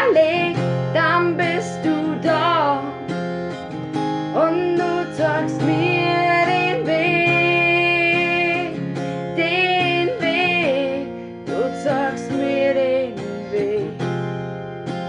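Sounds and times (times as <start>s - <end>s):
strummed acoustic guitar: 0.0s - 15.0s
person singing wordless melody: 4.4s - 14.0s.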